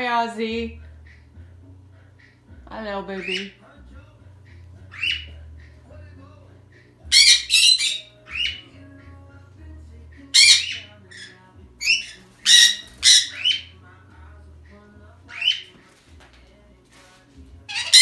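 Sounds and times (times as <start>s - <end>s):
parrots squawking: 3.1s - 3.6s, 4.9s - 5.3s, 7.1s - 8.6s, 10.3s - 13.7s, 15.3s - 16.0s, 17.7s - 18.0s.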